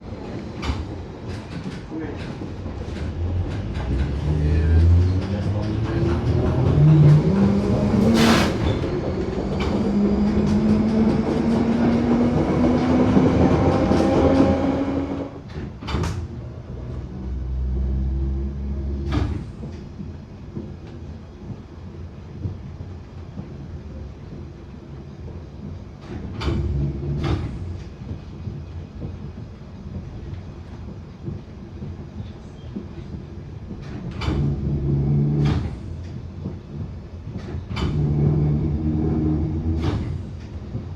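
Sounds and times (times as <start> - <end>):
train sharp pops: 8.0 - 9.7.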